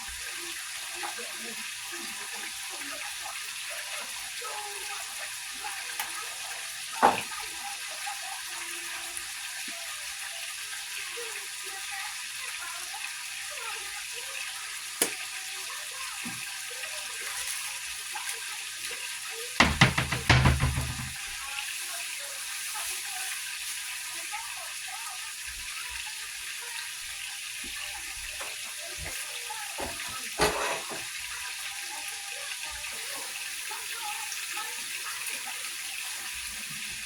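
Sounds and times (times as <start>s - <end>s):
steak sizzling in a pan: 0.0s - 37.0s
loud knocks: 19.6s - 21.2s.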